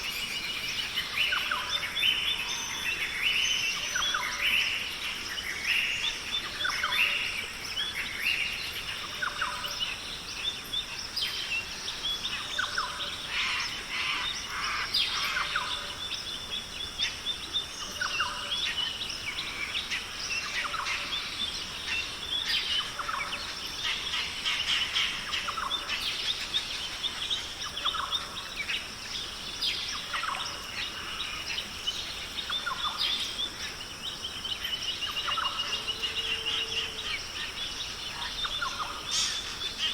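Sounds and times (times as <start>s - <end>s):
steady high hiss: 0.0s - 39.9s
birds chirping and whistling: 20.3s - 39.9s.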